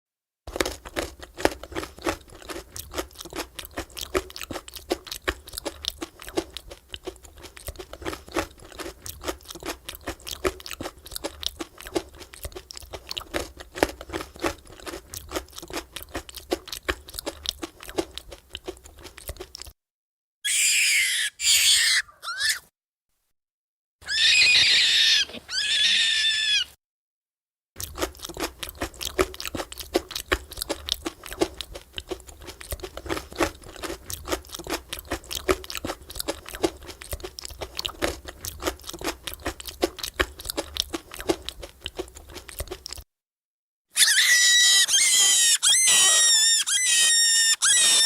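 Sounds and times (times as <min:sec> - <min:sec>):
rabbit screaming: 0:20.4 - 0:22.7, 0:24.0 - 0:26.8, 0:44.0 - 0:48.0
rabbit chewing: 0:27.8 - 0:43.0.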